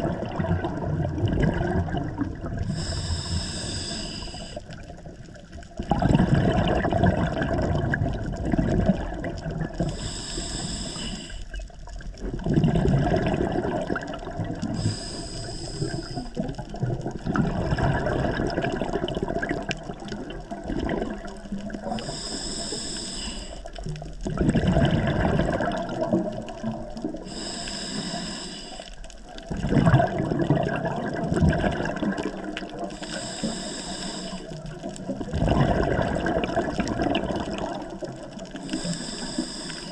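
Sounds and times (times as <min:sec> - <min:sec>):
gurgling exhaled bubbles: 0:00.0 - 0:28.4, 0:29.0 - 0:39.9
regulator hiss: 0:02.7 - 0:04.6, 0:09.9 - 0:11.6, 0:14.8 - 0:16.3, 0:22.0 - 0:23.7, 0:27.2 - 0:29.0, 0:32.9 - 0:34.7, 0:38.6 - 0:39.9.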